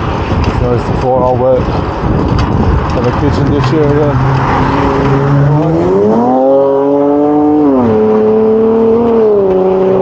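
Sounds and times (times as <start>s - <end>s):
vehicle engine accelerating: 2.7s - 10.0s.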